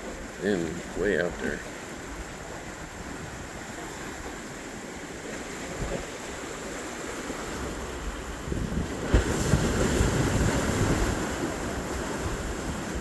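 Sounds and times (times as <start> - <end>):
water rushing: 0.0 - 13.0
wind: 0.0 - 13.0
wind buffeting microphone: 7.4 - 13.0.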